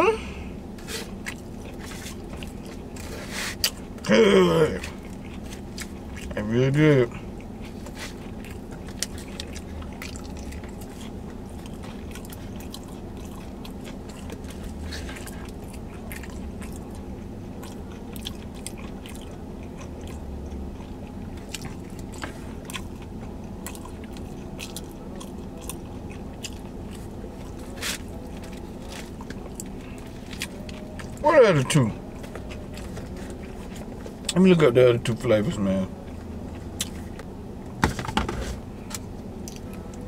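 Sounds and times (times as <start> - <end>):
low hum: 0.0 - 40.0
person chewing and smacking: 0.8 - 4.1, 4.7 - 6.4, 7.1 - 34.4, 36.0 - 37.3, 38.8 - 40.0.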